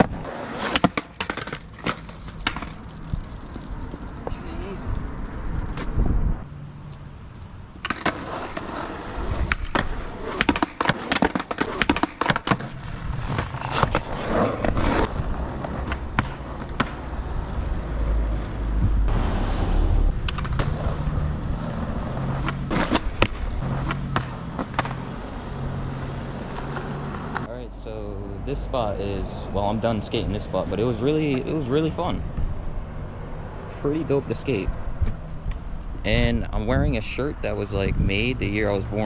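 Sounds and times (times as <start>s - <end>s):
skateboard clacking on ground: 0.0s - 6.1s, 6.9s - 17.8s, 20.2s - 25.2s
skateboard rolling on pavement: 0.0s - 27.5s.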